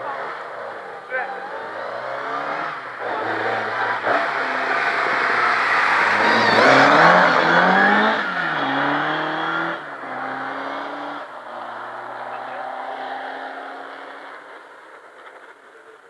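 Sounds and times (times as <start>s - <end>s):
rally car engine passing at speed: 0.0s - 16.0s.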